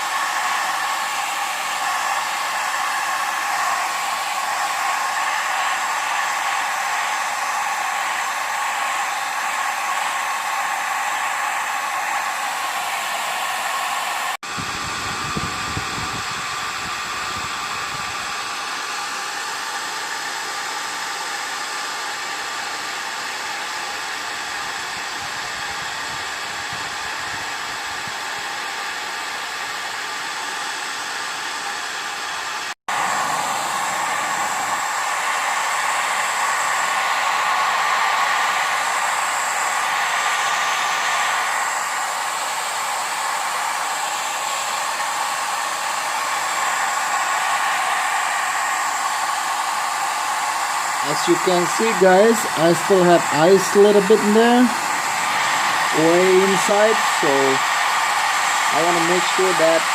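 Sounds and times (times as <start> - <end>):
electric blower whirring: 0.0 - 59.9.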